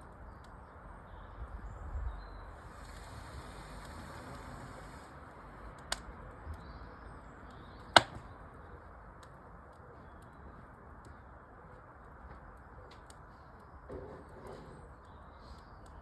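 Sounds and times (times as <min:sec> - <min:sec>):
steady low hiss: 0:01.4 - 0:06.0
wood fire crackling: 0:02.4 - 0:06.4, 0:07.5 - 0:08.2.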